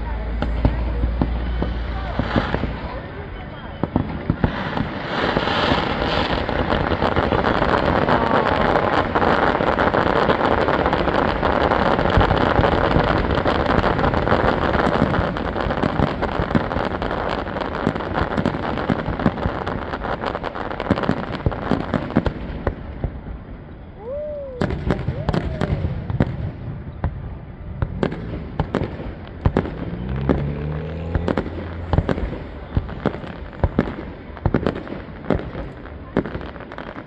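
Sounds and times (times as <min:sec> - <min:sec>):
fireworks bangs: 0:00.0 - 0:37.0
fireworks crackling: 0:00.0 - 0:37.0.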